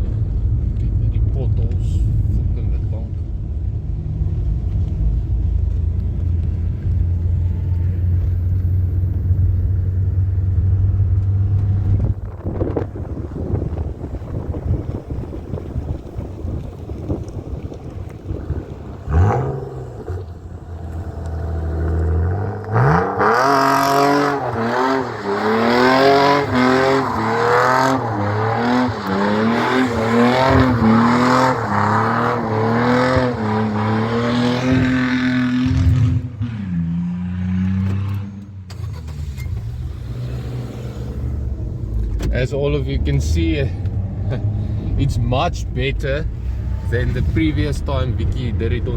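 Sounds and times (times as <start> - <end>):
car engine revving hard: 10.2 - 42.1.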